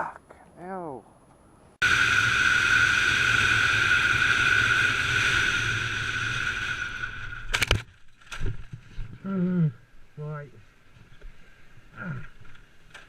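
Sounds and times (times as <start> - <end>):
motorcycle engine revving: 1.8 - 7.8.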